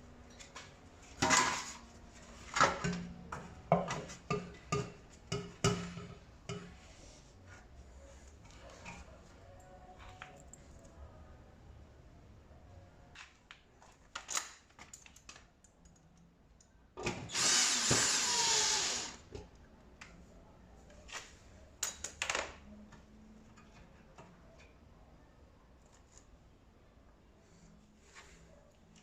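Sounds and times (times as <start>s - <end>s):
clicks and knocks of parts handled: 13.2s - 16.7s
power drill running: 17.3s - 19.2s.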